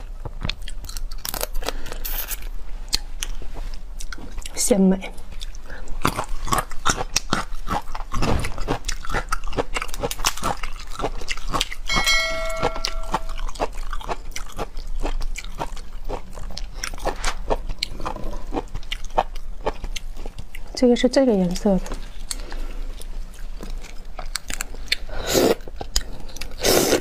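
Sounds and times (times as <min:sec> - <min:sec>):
wet chewing and crunching: 0:00.0 - 0:12.0, 0:12.6 - 0:27.0
short electronic chime: 0:11.9 - 0:13.5.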